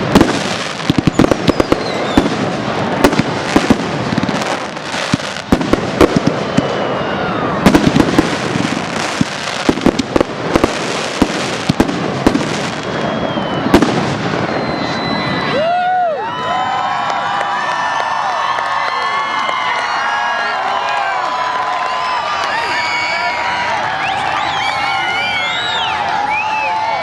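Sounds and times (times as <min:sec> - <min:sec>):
fireworks crackle: 0:00.0 - 0:15.6
fireworks bangs: 0:00.0 - 0:15.7
faint falling whistles: 0:01.1 - 0:02.3, 0:06.3 - 0:07.4, 0:12.7 - 0:15.6, 0:21.9 - 0:27.0.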